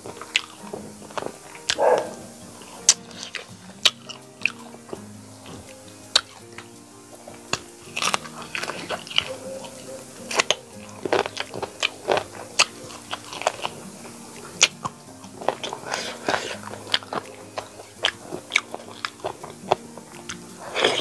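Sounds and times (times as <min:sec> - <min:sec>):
mouth clicks and smacks: 0:00.0 - 0:21.0
soft background music: 0:00.0 - 0:21.0
person biting and chewing: 0:07.5 - 0:13.8, 0:14.4 - 0:21.0.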